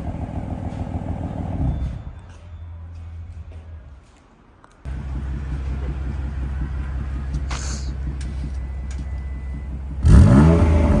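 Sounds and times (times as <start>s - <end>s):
car engine idling and revving: 0.0s - 2.4s, 4.9s - 11.0s.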